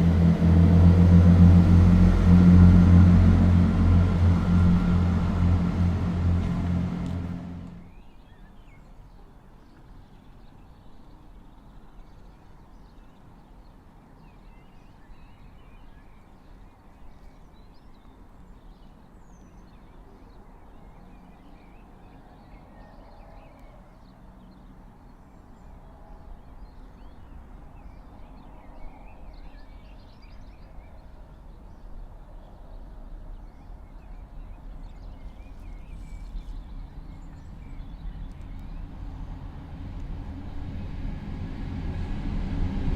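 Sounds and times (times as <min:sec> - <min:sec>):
steady low rumble: 0:00.0 - 0:08.0, 0:35.8 - 0:42.9.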